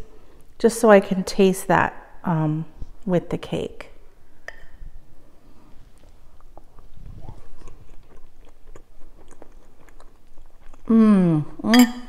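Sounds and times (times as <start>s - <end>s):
person chewing cake: 5.9s - 11.6s.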